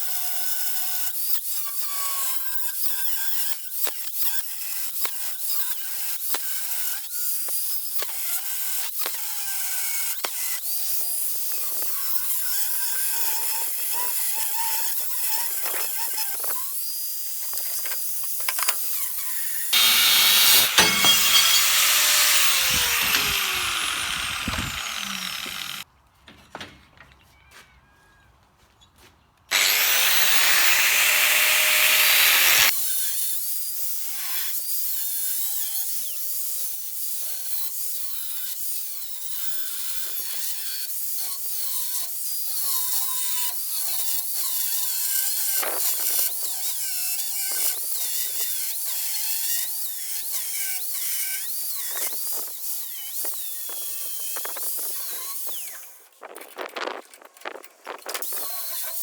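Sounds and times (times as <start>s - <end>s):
power tool whining on metal: 18.4s - 25.8s, 29.5s - 33.0s.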